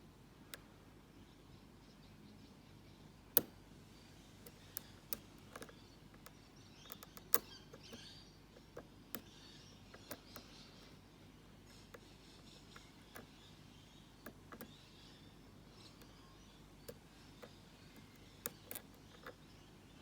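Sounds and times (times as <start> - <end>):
small metallic clicks: 3.3 - 3.6, 4.4 - 11.0, 11.7 - 20.0
lock pick scraping in keyway: 17.4 - 19.4.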